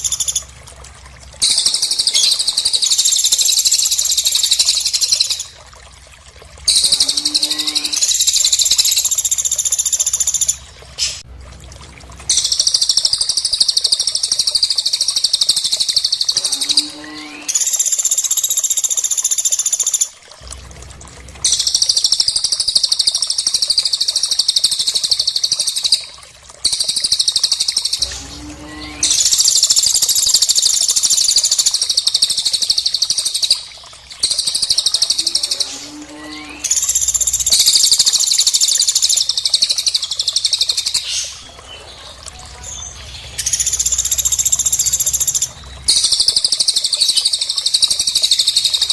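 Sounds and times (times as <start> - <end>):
songbirds trilling: 1.4 - 5.6, 6.7 - 11.2, 27.0 - 48.9.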